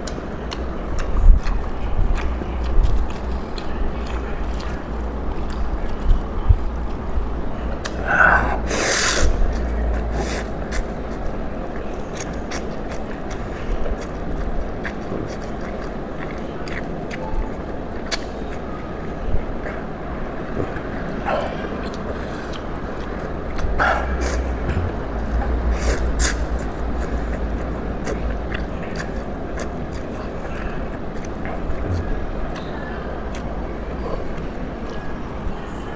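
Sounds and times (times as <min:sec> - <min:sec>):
steady low hum: 0:00.0 - 0:35.9
steady low rumble: 0:00.0 - 0:35.9
person eating noodles: 0:07.8 - 0:18.9, 0:19.5 - 0:32.6
person slurping noodles: 0:07.9 - 0:10.9, 0:23.6 - 0:29.3
chewing and utensil clicks: 0:12.1 - 0:18.7, 0:21.8 - 0:31.8.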